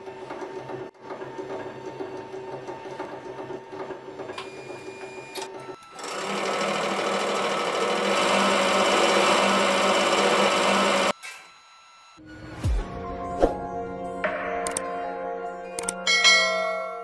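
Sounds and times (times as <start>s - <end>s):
electric motor rattling: 5.9s - 11.2s.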